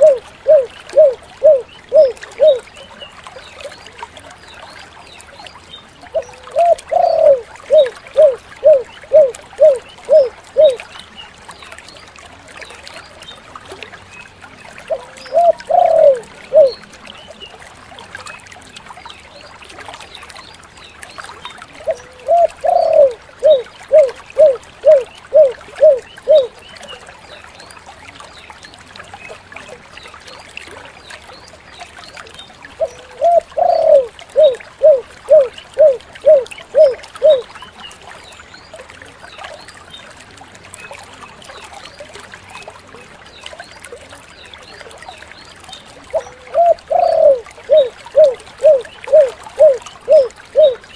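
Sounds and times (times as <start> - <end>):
dove cooing: 0.0 - 2.6, 6.1 - 10.8, 14.9 - 16.8, 21.8 - 26.5, 32.8 - 37.5, 46.1 - 50.8.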